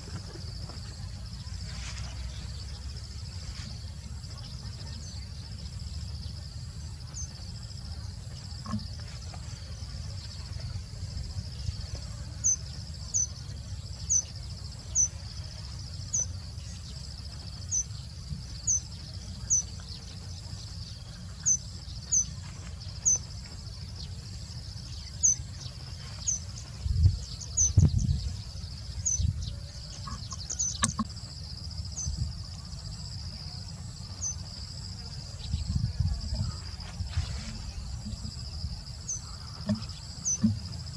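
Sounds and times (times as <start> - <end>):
insect drone: 0.0 - 40.9
bird chirping: 11.6 - 40.9
low thumps: 35.6 - 40.9.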